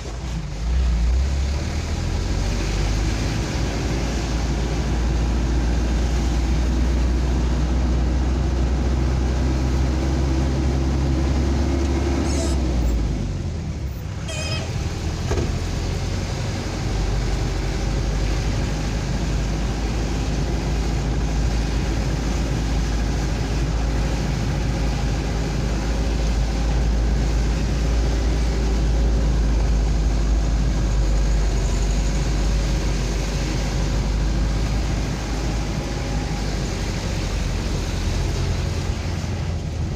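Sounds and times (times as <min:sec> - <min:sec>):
road rumble: 0:00.0 - 0:39.9
vehicle engine: 0:00.0 - 0:39.9.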